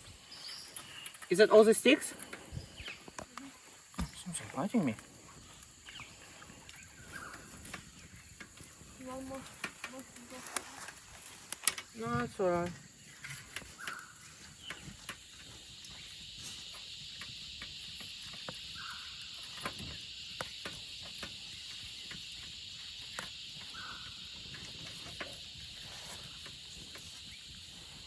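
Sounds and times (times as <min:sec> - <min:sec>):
high-pitched insect chorus: 0:00.0 - 0:28.0
small clicks and snaps: 0:08.4 - 0:12.0.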